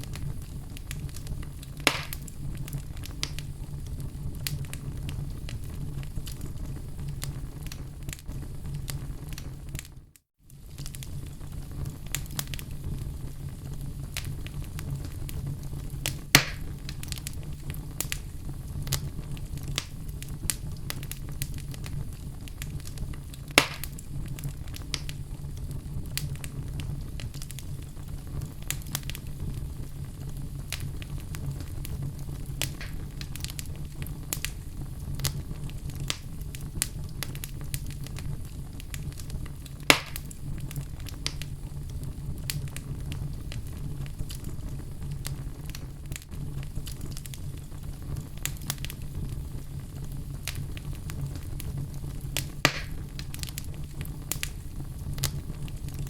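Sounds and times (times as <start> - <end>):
fire crackling: 0.0 - 56.0
low rumble of fire: 0.0 - 56.0
sharp loud pops: 1.9 - 2.2, 16.4 - 16.6, 23.6 - 23.9, 39.9 - 40.2, 52.7 - 53.0.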